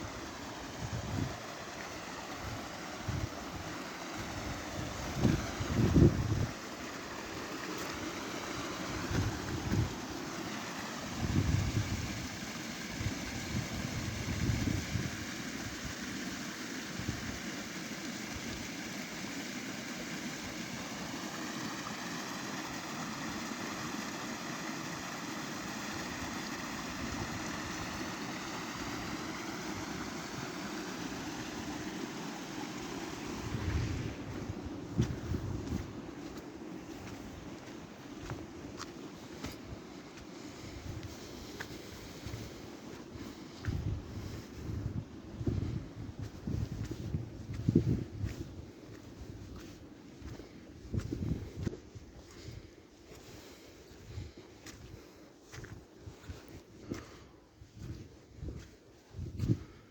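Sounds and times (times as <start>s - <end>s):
wind buffeting microphone: 0.7s - 1.4s, 2.4s - 6.6s, 8.9s - 10.0s, 11.1s - 15.9s, 33.2s - 39.6s, 43.2s - 52.6s, 57.6s - 59.8s.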